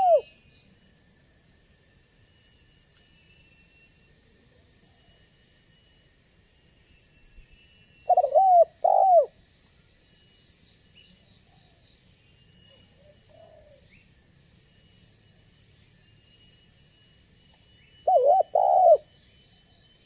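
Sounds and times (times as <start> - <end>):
dove cooing: 0.0 - 0.3, 8.1 - 9.3, 18.1 - 19.1.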